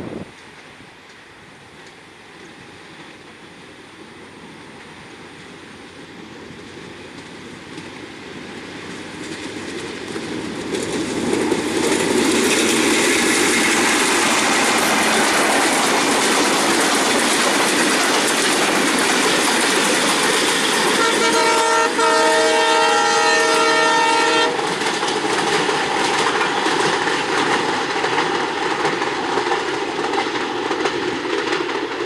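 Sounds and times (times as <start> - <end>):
passenger train passing: 0.0 - 32.0
wheels rushing on rails: 0.0 - 32.0.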